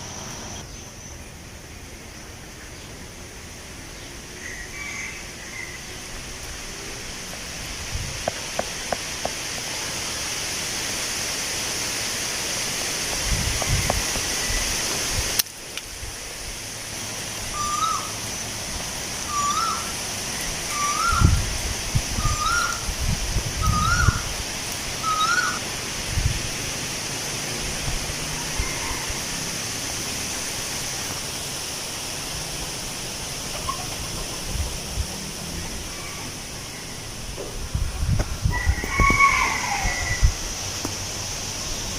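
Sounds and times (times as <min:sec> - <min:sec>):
wind rustling leaves: 0:00.0 - 0:41.9
wind buffeting microphone: 0:07.5 - 0:09.3, 0:13.1 - 0:15.4, 0:20.6 - 0:25.1, 0:26.0 - 0:26.6, 0:33.9 - 0:35.3, 0:37.5 - 0:40.6
bird calling: 0:17.5 - 0:18.2, 0:19.2 - 0:21.4, 0:22.2 - 0:22.9, 0:23.6 - 0:24.3, 0:25.0 - 0:25.6, 0:33.4 - 0:34.5.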